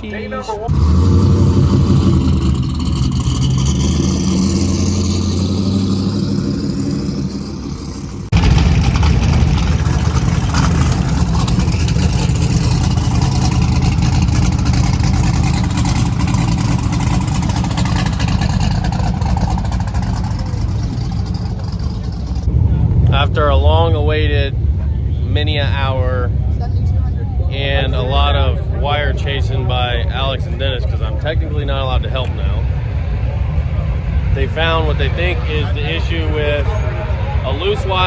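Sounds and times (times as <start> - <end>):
car engines running: 0.0 - 38.0
rough-running engine: 0.0 - 38.0.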